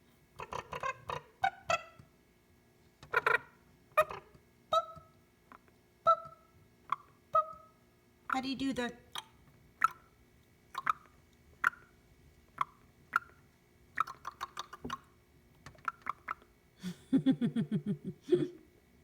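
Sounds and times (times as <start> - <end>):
parrot chattering: 0.4 - 2.0, 3.1 - 5.0.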